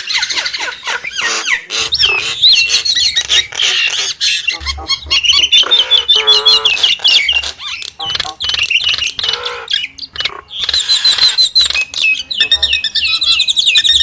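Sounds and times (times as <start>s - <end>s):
myna bird calling: 0.0s - 14.0s.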